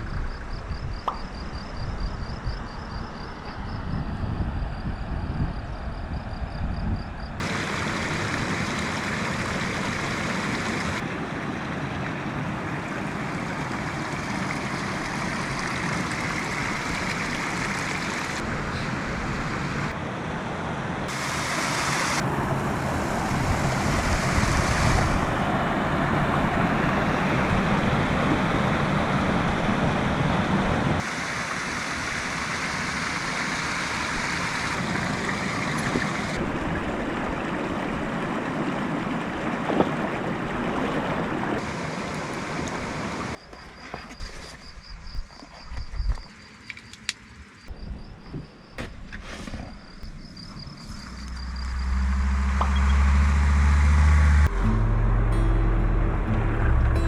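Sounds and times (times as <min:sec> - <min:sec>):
tyre and road noise: 0:07.2 - 0:31.1, 0:45.7 - 0:57.0
diesel engine running: 0:50.4 - 0:57.0.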